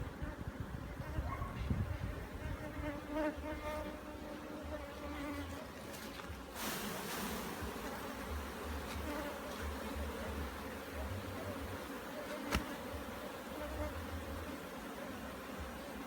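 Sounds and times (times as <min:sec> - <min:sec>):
bees buzzing: 0:01.8 - 0:16.0
short hiss: 0:06.5 - 0:07.6.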